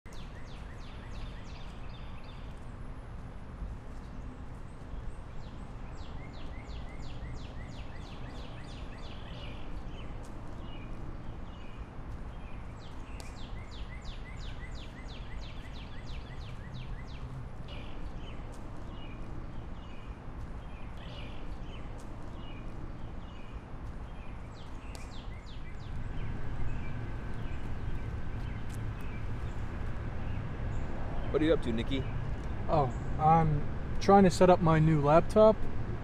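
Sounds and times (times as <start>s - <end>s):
birds singing: 0.1s - 3.0s, 3.8s - 35.6s
background rumble: 25.7s - 36.0s.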